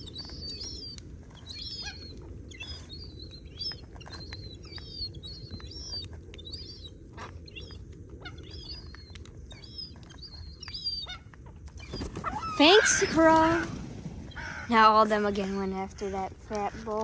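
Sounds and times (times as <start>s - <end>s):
gull chicks peeping: 0.0s - 17.0s.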